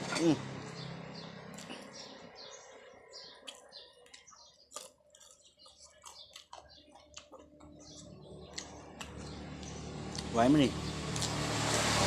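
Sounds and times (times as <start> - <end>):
small birds chirping: 0.2 - 11.4
chewing and mouth clicks: 1.5 - 2.0, 3.2 - 10.3, 11.1 - 11.8.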